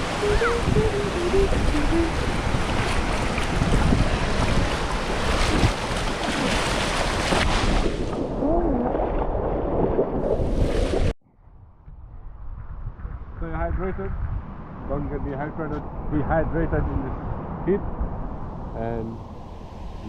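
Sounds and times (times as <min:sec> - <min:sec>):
faint children's voices: 0:00.0 - 0:02.2
waves breaking on a beach: 0:00.0 - 0:08.1
wind buffeting the microphone: 0:00.0 - 0:20.0.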